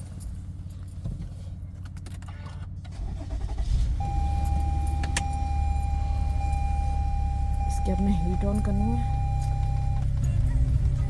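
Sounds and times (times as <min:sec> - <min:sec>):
car engine starting and idling: 0:00.0 - 0:11.0
steady high tone: 0:04.0 - 0:10.2.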